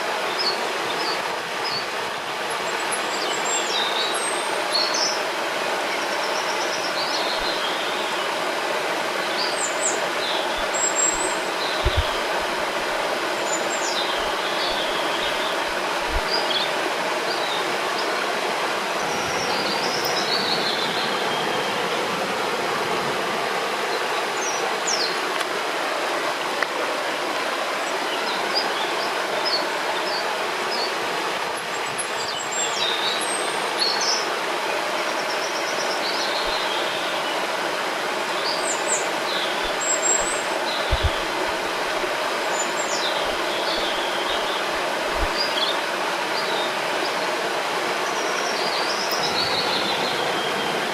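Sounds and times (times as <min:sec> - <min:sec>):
river water rushing: 0:00.0 - 0:50.9
birds chirping: 0:09.2 - 0:18.2, 0:38.3 - 0:47.3, 0:48.0 - 0:50.9.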